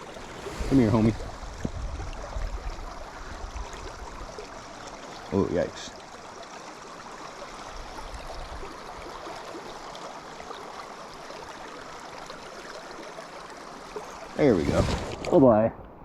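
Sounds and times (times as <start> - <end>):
river current rushing: 0.0 - 5.6, 14.1 - 15.7.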